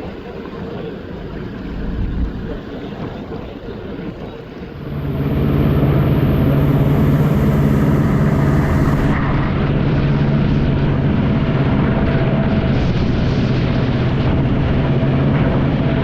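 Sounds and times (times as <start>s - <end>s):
jet ski engine at high revs: 4.0s - 16.0s.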